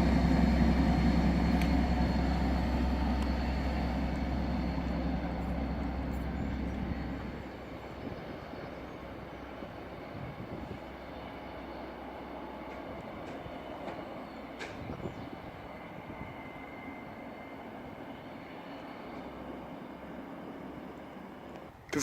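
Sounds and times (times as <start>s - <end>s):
train rumble: 0.0s - 22.0s.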